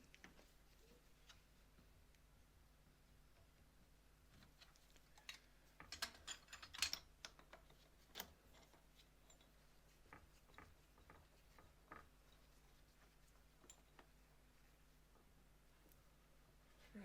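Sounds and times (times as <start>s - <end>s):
small objects clicking and tapping: 4.3s - 9.5s.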